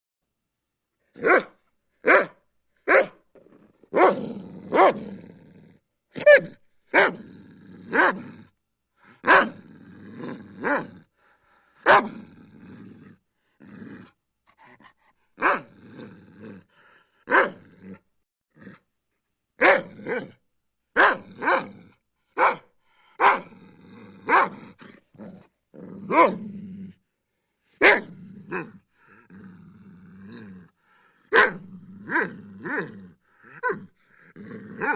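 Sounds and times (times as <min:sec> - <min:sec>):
dog barking: 0:01.2 - 0:03.2, 0:03.9 - 0:05.1, 0:06.2 - 0:07.2, 0:07.9 - 0:08.3, 0:09.2 - 0:09.6, 0:11.8 - 0:12.2, 0:15.4 - 0:15.7, 0:17.3 - 0:17.6, 0:19.6 - 0:20.4, 0:21.0 - 0:21.8, 0:22.4 - 0:23.5, 0:24.3 - 0:24.6, 0:26.1 - 0:26.4, 0:27.8 - 0:28.7, 0:31.3 - 0:32.9.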